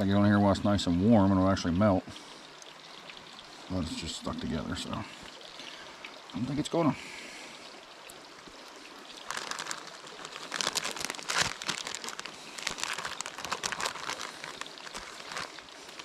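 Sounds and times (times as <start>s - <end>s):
cheese crinkling being pulled apart: 9.2s - 16.0s.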